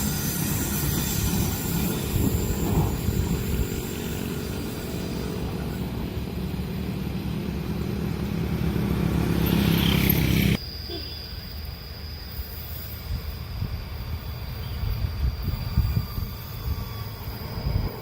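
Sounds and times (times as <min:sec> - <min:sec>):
high hiss: 0:00.0 - 0:07.0
deep engine rumble: 0:00.0 - 0:10.6.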